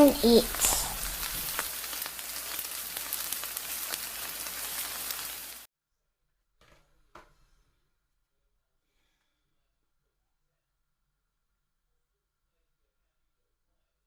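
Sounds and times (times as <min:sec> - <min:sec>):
food sizzling in a pan: 0:00.0 - 0:05.7.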